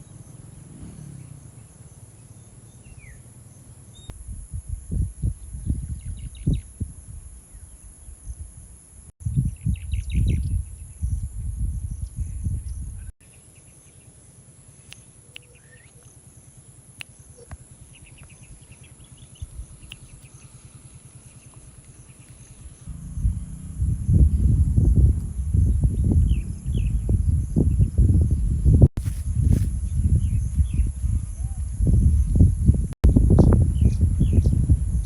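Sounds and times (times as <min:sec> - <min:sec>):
small birds chirping trills: 0:00.0 - 0:04.1, 0:09.3 - 0:35.0
wind buffeting the microphone: 0:04.1 - 0:13.1, 0:21.9 - 0:35.0
high insect drone: 0:10.7 - 0:35.0.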